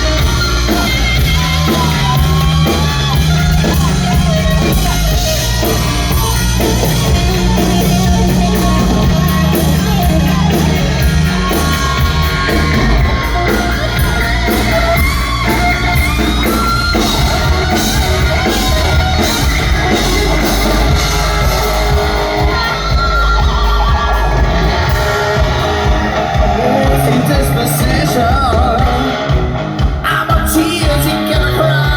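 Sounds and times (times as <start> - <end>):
hard rock band playing: 0.0 - 31.9
person singing: 0.0 - 31.9.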